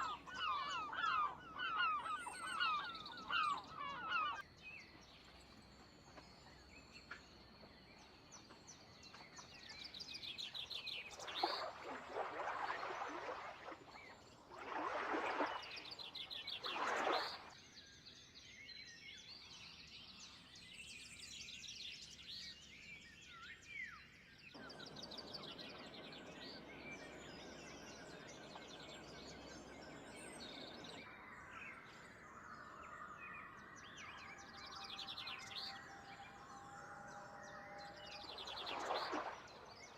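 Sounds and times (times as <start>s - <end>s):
birds chirping and trilling: 0.0s - 17.6s, 22.5s - 39.9s.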